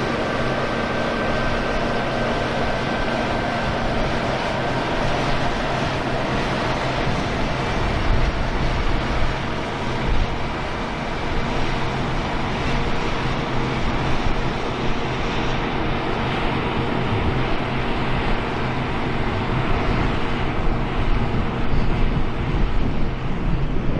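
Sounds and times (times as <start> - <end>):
diesel engine humming: 0.0 - 14.3.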